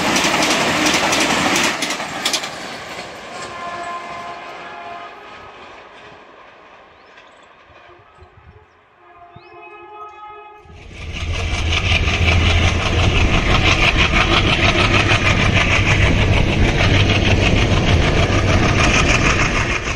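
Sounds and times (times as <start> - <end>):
moving train rumble: 0.0 - 19.9
train horn: 3.4 - 5.7, 7.8 - 10.9.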